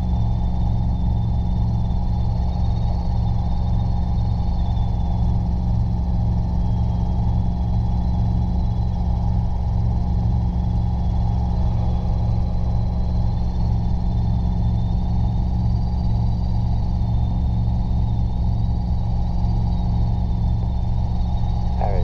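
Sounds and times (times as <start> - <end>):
helicopter engine and rotors drone: 0.0 - 22.0.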